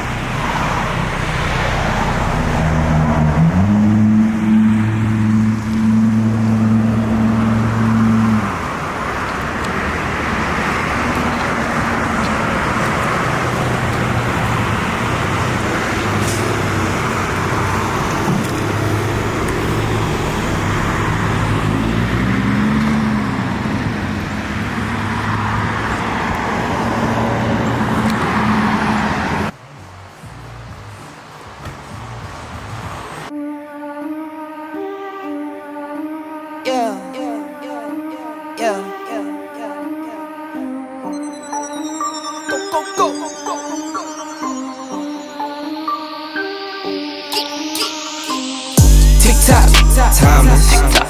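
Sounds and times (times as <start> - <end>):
car engine humming: 0.0 - 33.3, 48.7 - 51.0.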